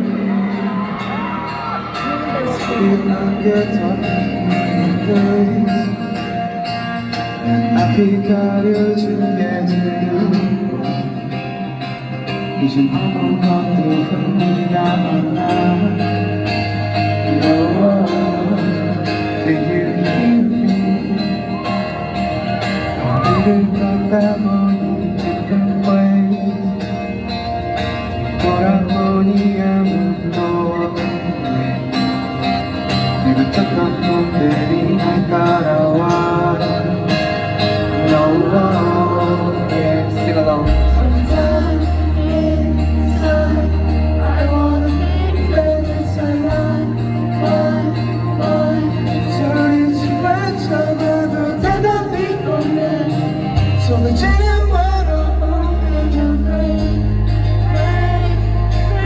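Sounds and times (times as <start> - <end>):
male lead vocal singing: 0.0 - 59.0
rock band playing live: 0.0 - 59.0
deep bass line: 34.0 - 59.0.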